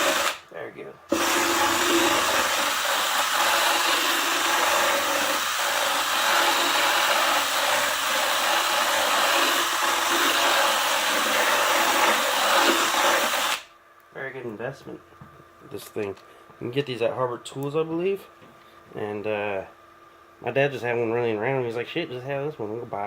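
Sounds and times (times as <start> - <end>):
electric drill grinding foam: 0.0 - 0.4, 1.1 - 13.7.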